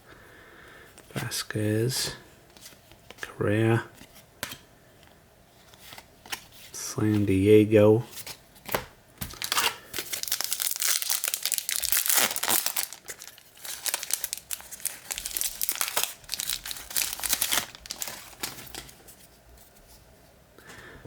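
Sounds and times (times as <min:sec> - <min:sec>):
foil wrapper crinkling and tearing: 0:09.2 - 0:19.0.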